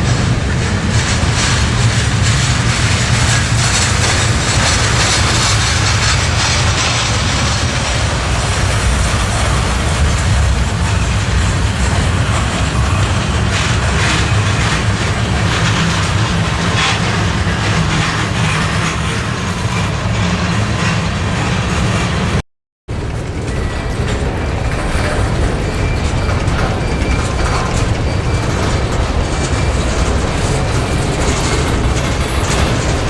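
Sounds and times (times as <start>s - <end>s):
faint clicks from railcars: 0.0s - 15.1s, 17.9s - 33.0s
freight train wheels rumbling on rail: 0.0s - 33.0s.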